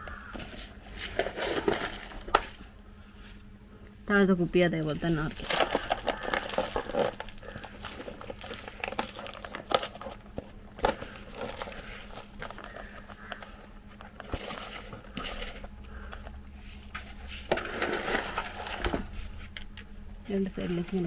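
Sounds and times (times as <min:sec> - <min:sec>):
gritty soil rustling: 0:00.1 - 0:03.6, 0:04.4 - 0:21.0
thin plastic crinkling: 0:04.8 - 0:21.0.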